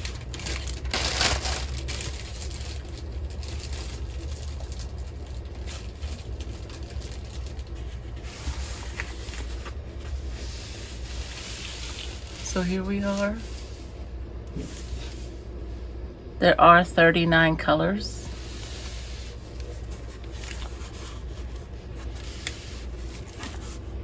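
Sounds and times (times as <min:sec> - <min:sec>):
canvas and paper rustling: 0:00.0 - 0:15.4, 0:18.2 - 0:24.0
steady low hum: 0:00.0 - 0:24.0.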